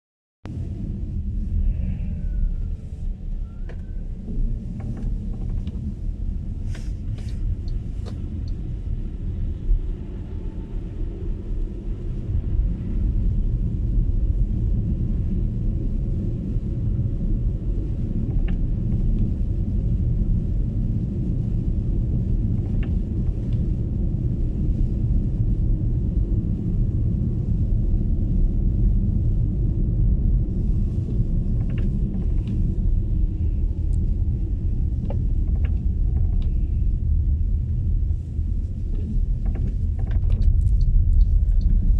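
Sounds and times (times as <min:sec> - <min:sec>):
road and tyre rumble: 0:00.4 - 0:41.9.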